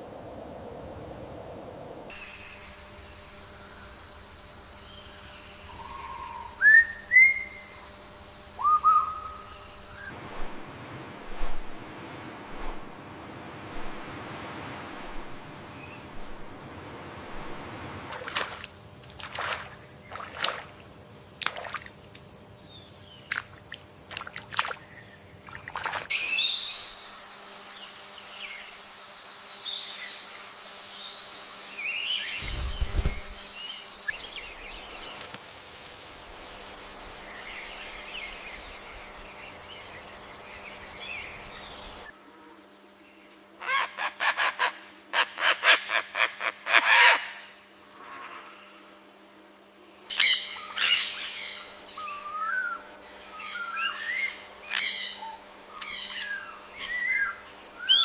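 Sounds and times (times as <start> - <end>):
birds chirping: 32.0 - 35.2
birds calling: 32.2 - 35.2.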